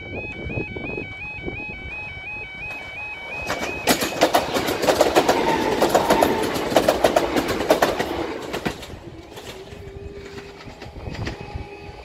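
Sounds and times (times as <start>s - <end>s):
train wheels clattering over rail joints: 3.4s - 12.0s.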